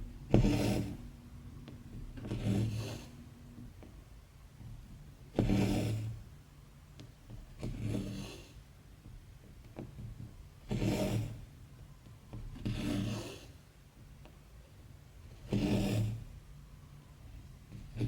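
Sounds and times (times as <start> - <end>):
thread rasping through fabric: 0.0 - 3.6.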